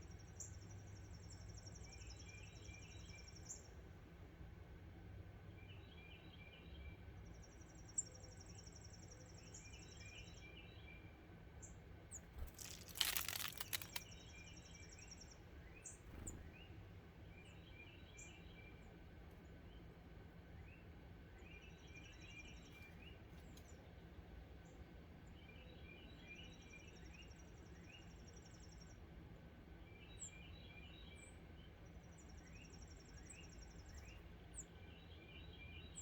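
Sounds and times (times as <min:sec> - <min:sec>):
small birds chirping: 0:11.6 - 0:23.9, 0:30.0 - 0:36.0
loud rustle: 0:12.4 - 0:14.0.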